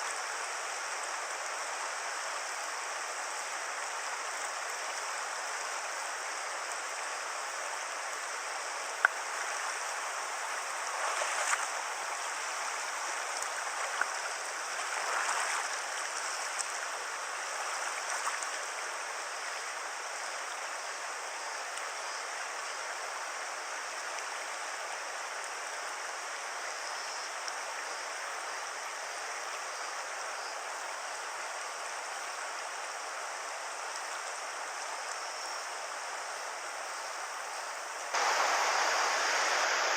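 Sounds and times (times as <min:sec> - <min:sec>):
river current rushing: 0:00.0 - 0:21.8, 0:35.7 - 0:39.9.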